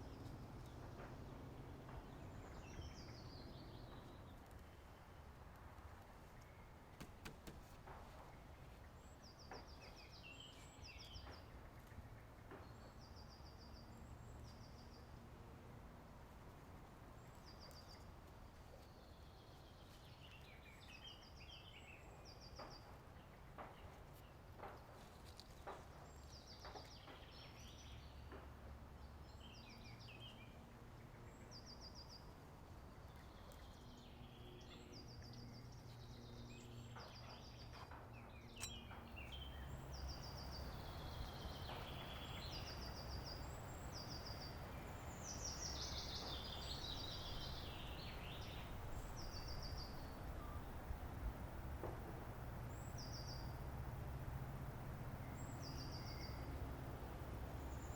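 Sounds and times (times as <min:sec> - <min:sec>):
faint low outdoor rumble: 0:00.0 - 0:57.9.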